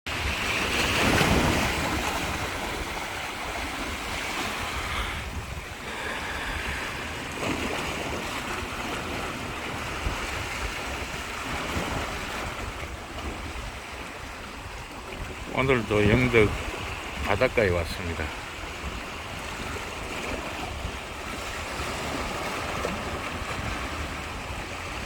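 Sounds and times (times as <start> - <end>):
wind on microphone: 0.1 - 17.4, 18.3 - 25.0
sea waves washing onto shore: 0.1 - 25.0.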